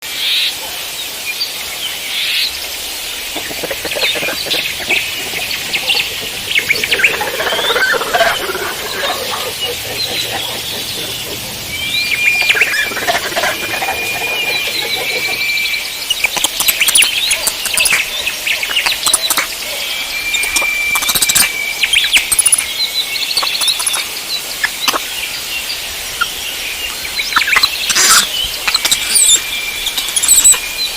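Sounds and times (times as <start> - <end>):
birds singing and calling: 1.9 - 30.9
sharp clicks: 16.1 - 18.0, 23.4 - 24.0.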